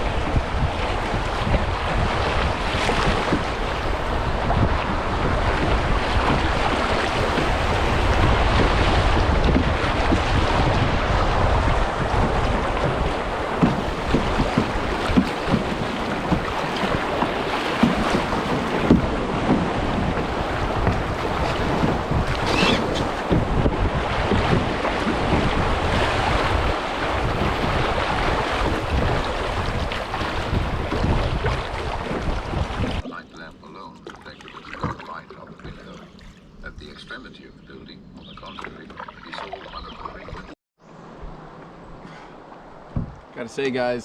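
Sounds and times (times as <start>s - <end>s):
rushing river water: 0.0s - 37.0s, 38.4s - 44.0s
wind buffeting microphone: 0.0s - 43.4s
short knocks or splashes: 1.0s - 10.9s, 12.0s - 36.4s, 42.9s - 43.3s.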